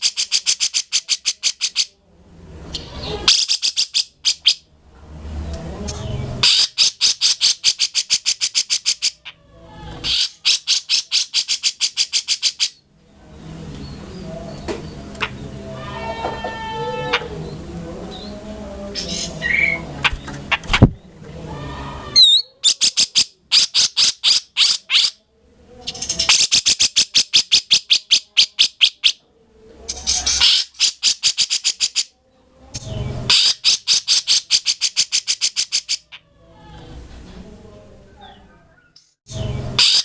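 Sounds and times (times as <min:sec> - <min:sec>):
soft mixed bird calls: 0:05.3 - 0:25.2
bulbul harsh chattering: 0:06.0 - 0:09.3, 0:10.0 - 0:12.8, 0:32.8 - 0:36.1.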